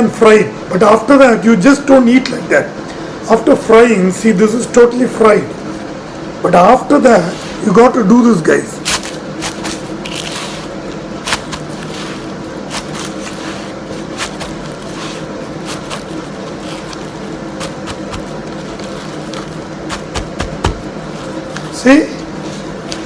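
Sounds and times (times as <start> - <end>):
background hum: 0.0 - 23.0
hands crushing crispy flatbread: 8.9 - 23.0.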